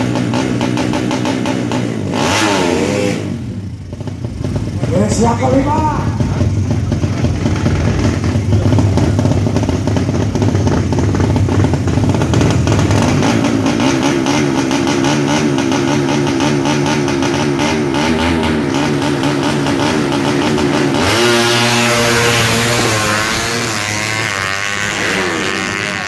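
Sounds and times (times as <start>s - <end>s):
motorcycle engines revving: 0.0s - 26.0s.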